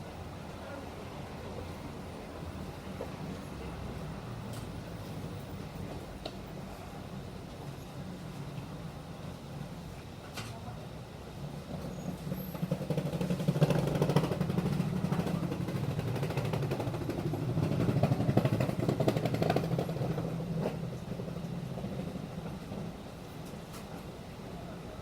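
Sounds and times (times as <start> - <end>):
bus engine drone: 0.0 - 25.0
bus interior rattles: 11.5 - 25.0.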